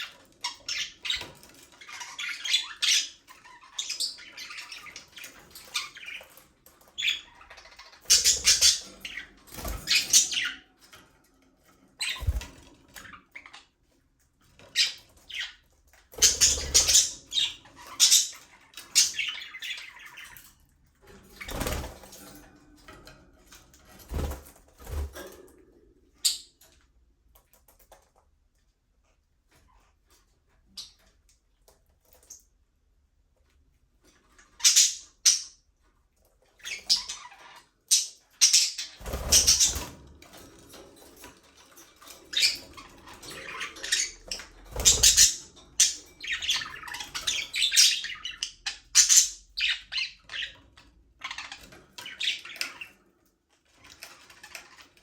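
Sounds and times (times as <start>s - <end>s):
budgerigars chirping: 7.0s - 10.7s, 16.2s - 20.4s, 34.6s - 35.6s, 36.6s - 39.9s, 42.3s - 50.6s.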